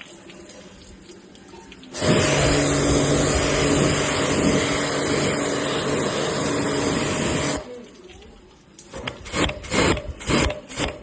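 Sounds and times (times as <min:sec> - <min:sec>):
water spraying hiss: 0:01.9 - 0:07.8, 0:08.9 - 0:11.0
pressure washer motor hum: 0:02.0 - 0:07.7.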